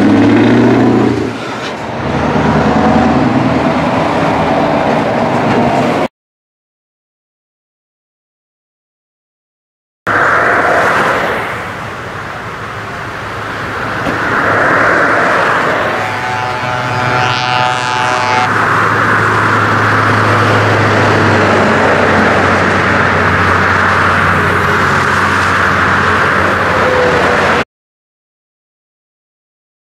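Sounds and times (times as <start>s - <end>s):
low engine drone: 0.0s - 6.1s, 10.1s - 27.6s
truck engine revving: 0.0s - 6.1s, 10.1s - 27.6s
pitched tone: 15.7s - 18.6s.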